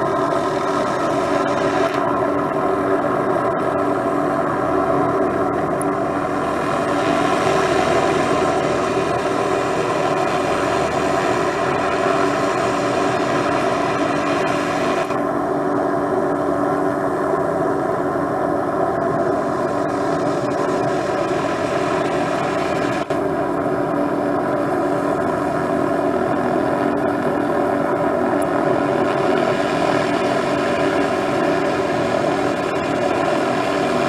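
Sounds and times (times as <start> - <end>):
helicopter engine and rotor: 0.0 - 34.0.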